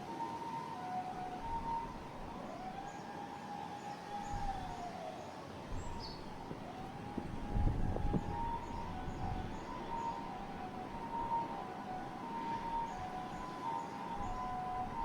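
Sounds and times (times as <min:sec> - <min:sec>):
faint steady siren tone: 0:00.0 - 0:15.0
siren wailing: 0:00.0 - 0:15.0
wind rumbling on microphone: 0:04.2 - 0:04.9, 0:05.7 - 0:13.5.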